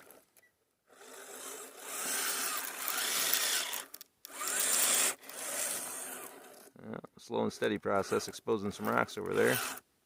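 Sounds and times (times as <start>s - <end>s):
electric motor and gears whining: 0.9s - 6.7s, 9.3s - 9.8s.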